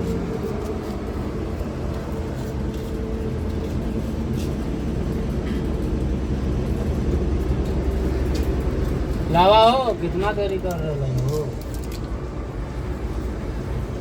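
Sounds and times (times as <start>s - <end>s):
engine humming steadily: 0.0s - 14.0s.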